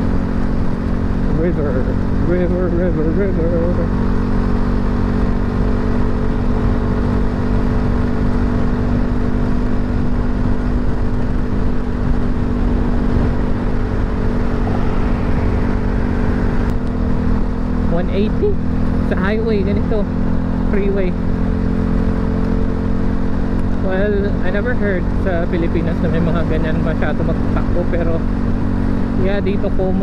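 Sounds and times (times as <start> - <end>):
motorcycle engine cruising: 0.0 - 30.0
wind rushing: 11.9 - 17.9.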